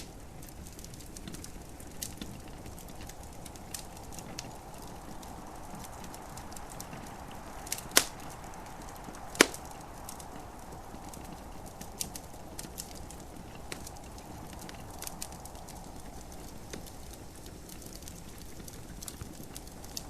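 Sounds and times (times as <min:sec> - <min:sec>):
gentle rain hiss: 0:00.0 - 0:20.0
wood fire crackling: 0:00.0 - 0:20.0
sharp loud pops of fire: 0:07.6 - 0:10.2.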